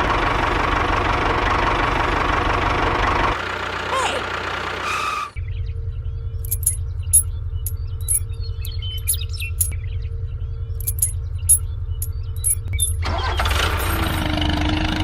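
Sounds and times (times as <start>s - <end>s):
low motor rumble: 0.0s - 15.0s
light metallic clicks: 6.4s - 9.8s, 10.8s - 11.6s, 12.4s - 13.0s.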